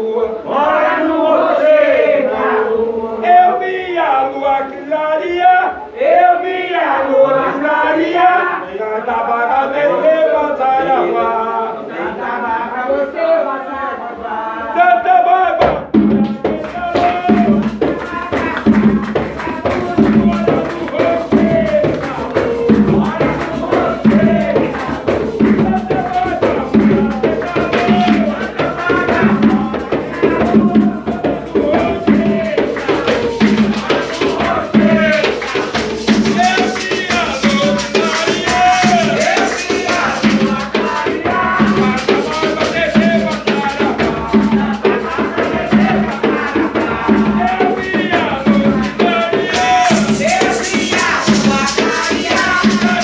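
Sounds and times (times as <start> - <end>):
voices singing a chant: 0.0 - 53.0
steady drum beat: 15.6 - 53.0
shaker rattles: 16.4 - 53.0.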